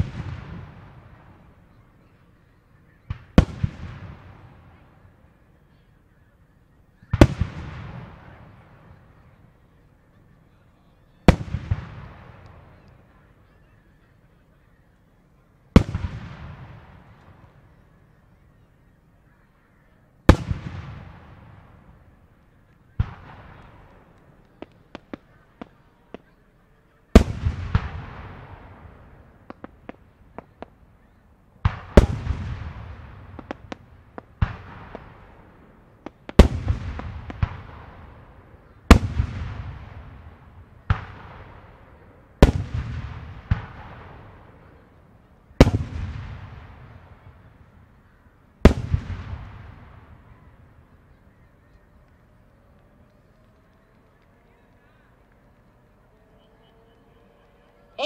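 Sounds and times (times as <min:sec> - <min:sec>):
small pops and crackles: 0:22.4 - 0:26.4, 0:29.4 - 0:32.7, 0:48.6 - 0:58.0
firework shells booming: 0:27.1 - 0:51.1.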